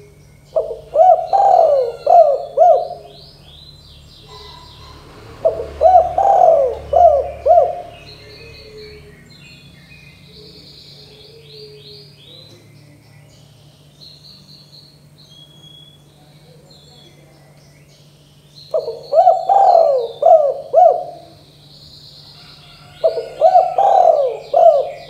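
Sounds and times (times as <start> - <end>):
dove cooing: 0.0 - 3.6, 4.2 - 9.2, 10.3 - 12.6, 18.7 - 21.6, 22.3 - 25.0
small birds chirping: 0.0 - 25.0.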